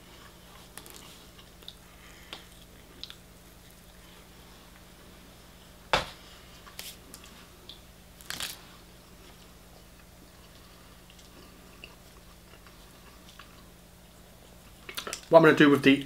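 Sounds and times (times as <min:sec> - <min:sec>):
quiet chewing: 0:00.1 - 0:04.9, 0:09.2 - 0:15.3
fried chicken crunching: 0:00.7 - 0:01.8, 0:08.2 - 0:08.6.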